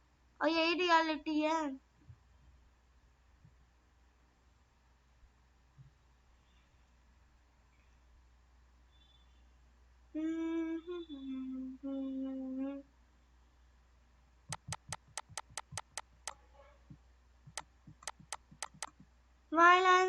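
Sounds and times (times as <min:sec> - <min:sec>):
person humming: 0:10.2 - 0:12.9
sharp clicks or taps: 0:14.5 - 0:16.4, 0:17.5 - 0:19.0.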